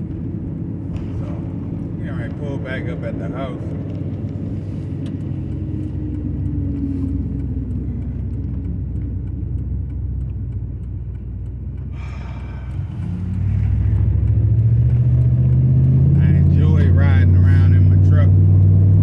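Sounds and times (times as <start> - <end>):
pickup truck engine rumbling: 0.0 - 19.0.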